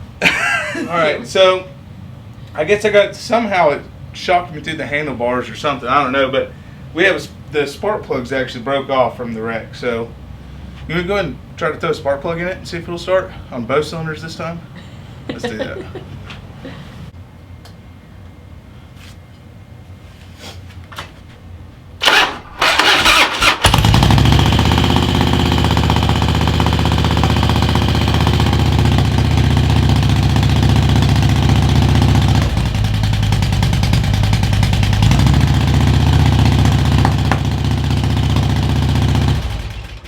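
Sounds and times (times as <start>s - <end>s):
motorcycle starter cranking: 22.0s - 25.3s
motorcycle engine running roughly: 23.0s - 40.0s.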